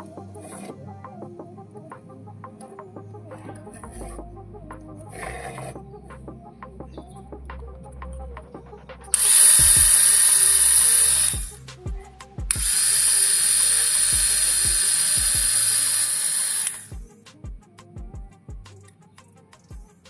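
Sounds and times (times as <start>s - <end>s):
high-pitched whine: 9.1s - 17.0s
small power tool motor: 9.2s - 11.6s, 12.5s - 17.0s.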